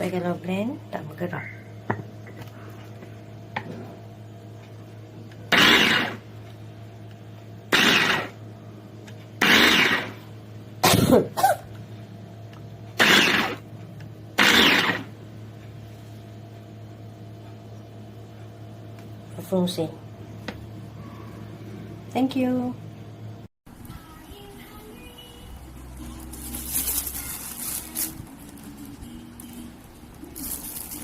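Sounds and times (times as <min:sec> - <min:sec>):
steady low hum: 0:00.0 - 0:31.0
electric chopper pulsing: 0:05.5 - 0:06.2, 0:07.7 - 0:08.4, 0:09.4 - 0:10.2, 0:13.0 - 0:13.6, 0:14.4 - 0:15.2.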